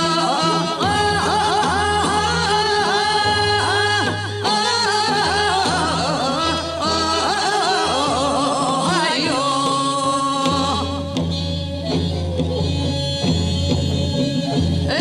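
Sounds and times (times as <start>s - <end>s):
person singing with wavering pitch: 0.0s - 11.2s
instrumental accompaniment: 0.0s - 15.0s.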